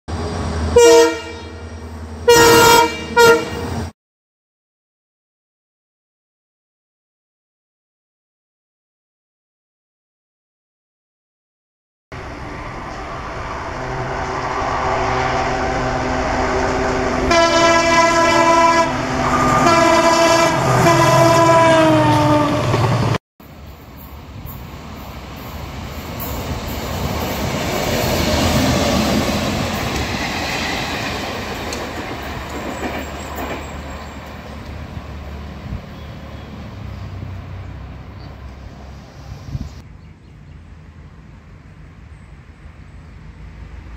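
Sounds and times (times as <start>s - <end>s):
train horn blasts: 0.7s - 3.8s, 13.7s - 22.8s
diesel locomotive engine running: 12.2s - 39.8s
train wheels clickety-clack: 26.0s - 34.8s.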